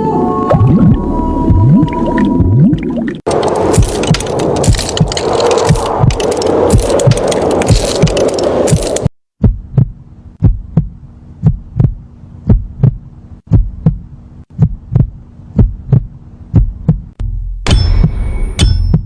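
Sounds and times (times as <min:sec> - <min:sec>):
heartbeat thumps: 0:00.5 - 0:02.9, 0:03.8 - 0:19.0
loud crackling noise: 0:03.2 - 0:09.2.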